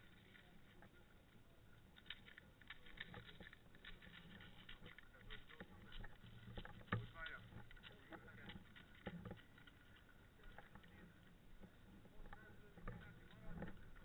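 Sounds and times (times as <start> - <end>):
faint rustling and crackling: 0.0 - 14.0.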